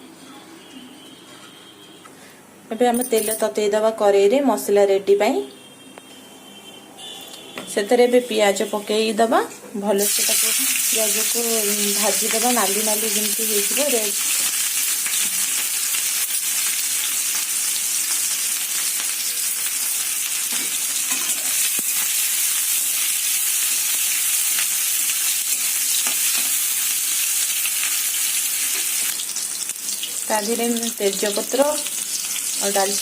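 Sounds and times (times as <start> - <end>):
onions sizzling in oil: 10.0 - 33.0.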